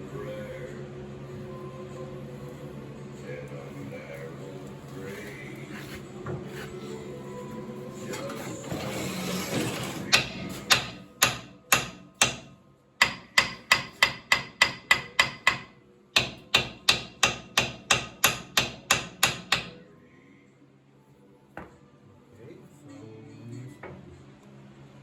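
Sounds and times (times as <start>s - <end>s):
metal scraping: 8.0s - 10.7s
hammer striking metal: 10.1s - 19.8s.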